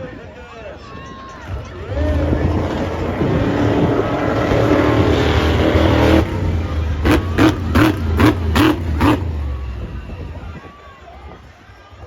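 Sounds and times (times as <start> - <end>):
vehicle engine revving: 1.8 - 10.1.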